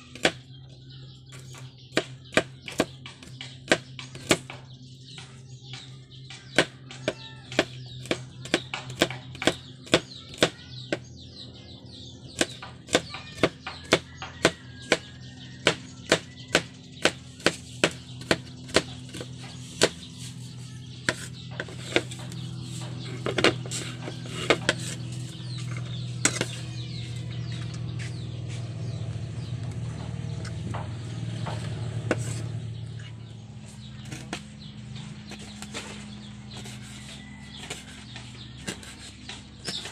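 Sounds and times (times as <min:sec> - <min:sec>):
knife chopping on wooden board: 0:00.1 - 0:00.4, 0:01.4 - 0:04.7, 0:06.3 - 0:11.1, 0:12.3 - 0:20.4, 0:21.0 - 0:27.0, 0:30.7 - 0:32.6, 0:34.0 - 0:34.5, 0:36.5 - 0:39.9.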